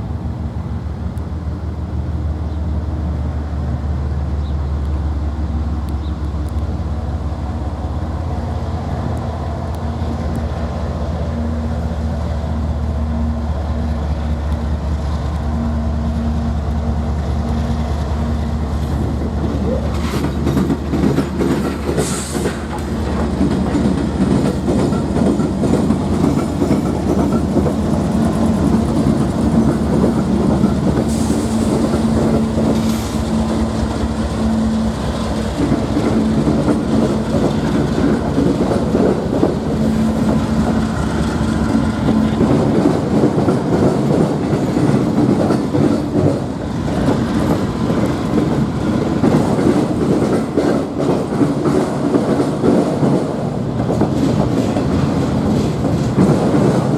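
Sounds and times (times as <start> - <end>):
train wheels clattering on rails: 4.4 - 56.9.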